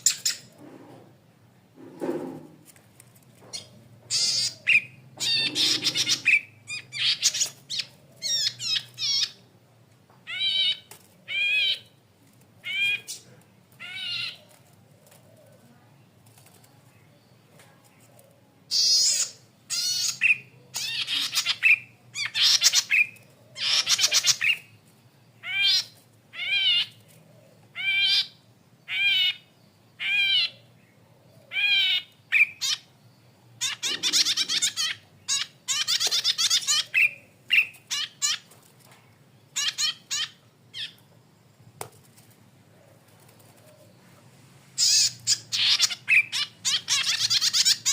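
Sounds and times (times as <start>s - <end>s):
bird calling harsh notes: 3.6s - 9.4s, 33.6s - 38.5s, 44.8s - 47.9s.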